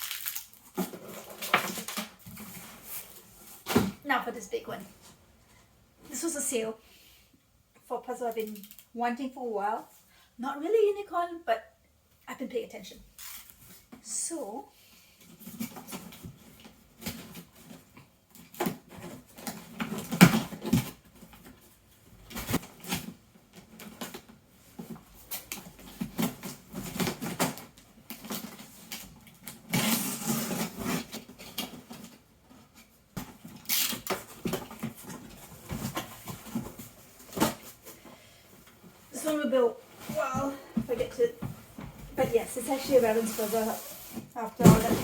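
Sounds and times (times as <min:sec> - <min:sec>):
cardboard box knocks and bumps: 0:44.2 - 0:45.0.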